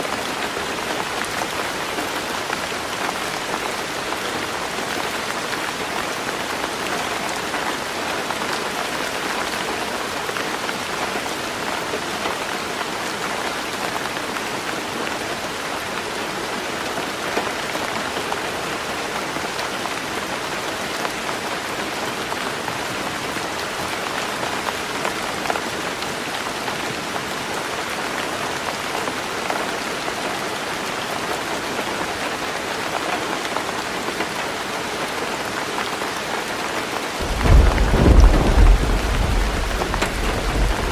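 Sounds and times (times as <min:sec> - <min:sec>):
heavy rain on a roof: 0:00.0 - 0:40.9
raindrop ticks: 0:37.2 - 0:40.9.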